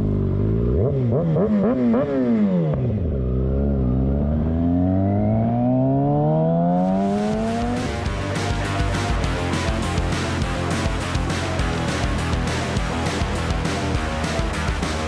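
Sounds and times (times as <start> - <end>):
motorcycle engine accelerating: 0.0 - 15.0
music: 7.1 - 15.0.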